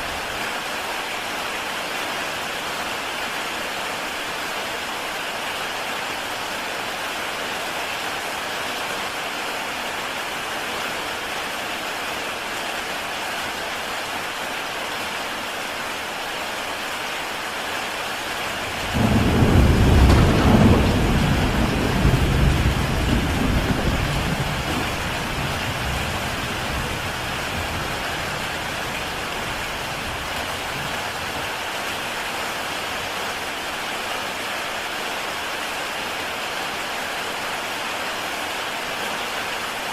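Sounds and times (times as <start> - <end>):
heavy rain on a tile roof: 0.0 - 39.9
deep thunder rumble: 18.7 - 28.4.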